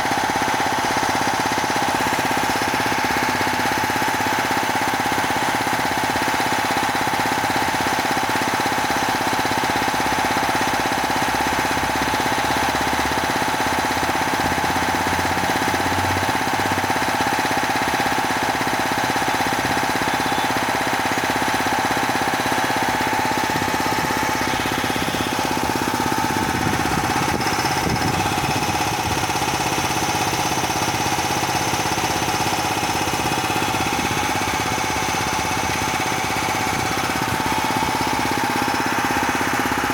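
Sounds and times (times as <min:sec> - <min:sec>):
high-pressure compressor droning: 0:00.0 - 0:39.9.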